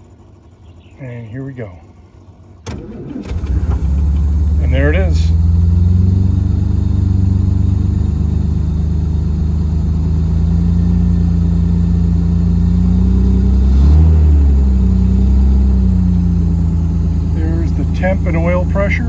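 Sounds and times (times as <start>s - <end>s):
car engine running on choke: 2.2s - 19.0s.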